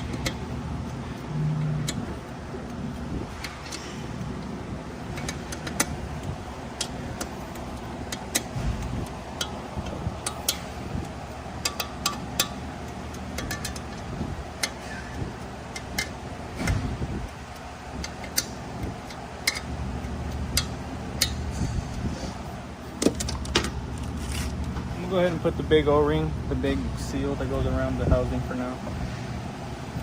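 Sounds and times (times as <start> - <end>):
steady low hum: 0.0 - 30.0
metallic clicks of hand tools: 5.1 - 21.5.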